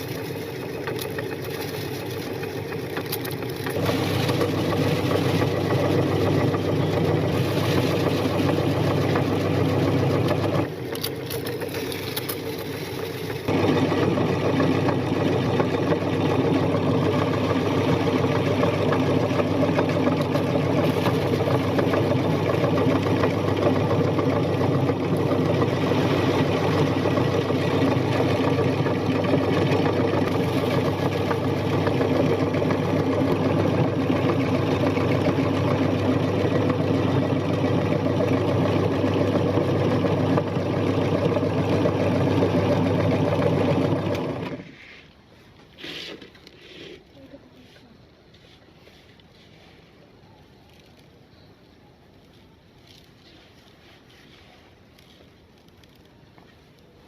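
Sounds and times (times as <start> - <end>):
meat grinder motor running: 0.0 - 44.6.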